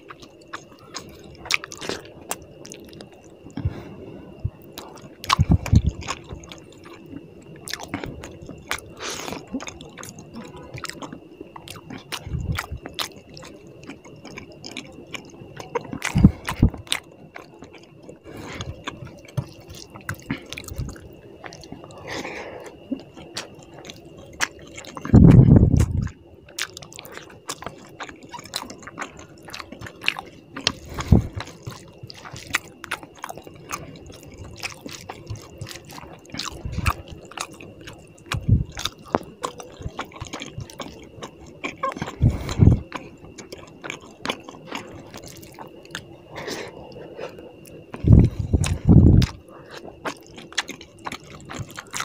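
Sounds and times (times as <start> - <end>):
wet chewing and mouth clicks: 0.0 - 52.0
squishing of sauced rice: 26.1 - 52.0.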